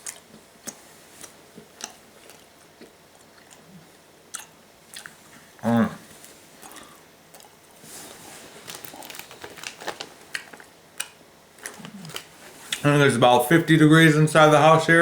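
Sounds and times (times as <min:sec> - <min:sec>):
person humming: 0:05.6 - 0:06.0.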